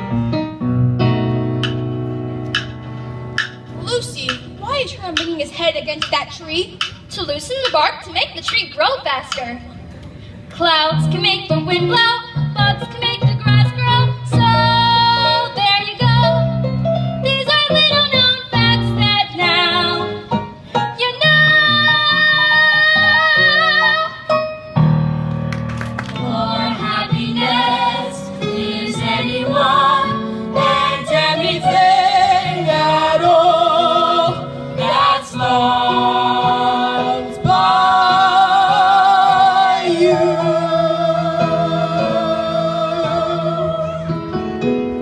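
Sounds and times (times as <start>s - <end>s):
instrumental accompaniment: 0.0s - 45.0s
group singing: 26.2s - 43.9s.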